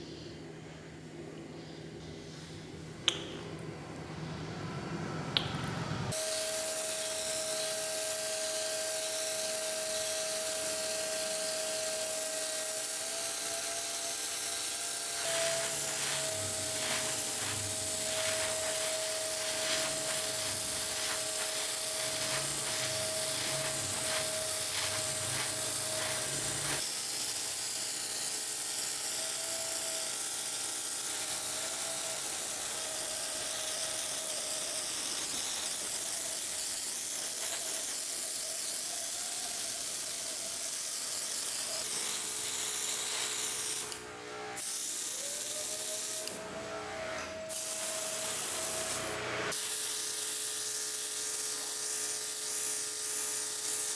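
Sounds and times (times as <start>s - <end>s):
electric power tool whining: 6.1s - 40.7s.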